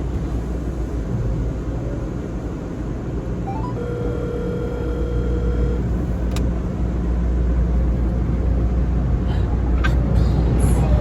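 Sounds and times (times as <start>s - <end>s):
low vehicle and machinery rumble: 0.0s - 11.0s
rising whine: 3.4s - 6.2s.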